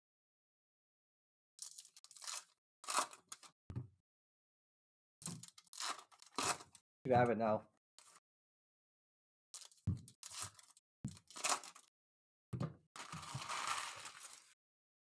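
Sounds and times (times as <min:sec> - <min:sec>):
card pack wrappers crinkling: 0:13.0 - 0:14.6.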